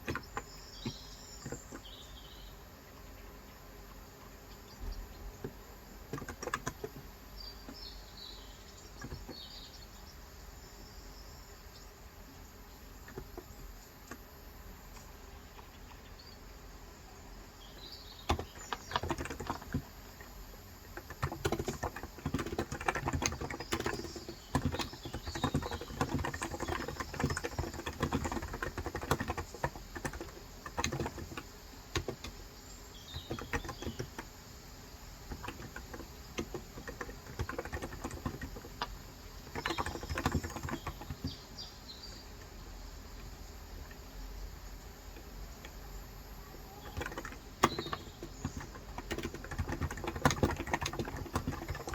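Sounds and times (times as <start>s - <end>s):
keyboard typing: 0.0s - 1.9s, 5.4s - 7.1s, 18.2s - 34.4s, 35.2s - 41.4s, 45.1s - 51.9s
birds chirping: 0.0s - 51.9s.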